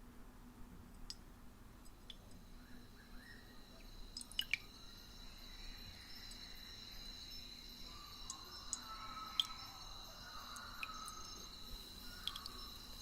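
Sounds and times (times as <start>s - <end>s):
insect trill: 1.8s - 13.0s
water drips: 3.8s - 4.9s, 8.2s - 9.7s, 10.4s - 13.0s.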